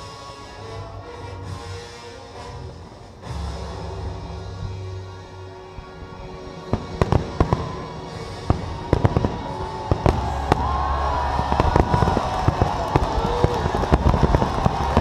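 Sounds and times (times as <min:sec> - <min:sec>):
fireworks bursting: 0:05.5 - 0:15.0.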